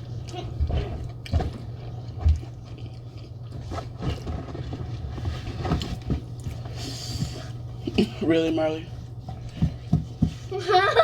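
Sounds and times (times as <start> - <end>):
chewing and biting: 0.0 - 5.2
steady low hum: 0.0 - 11.0.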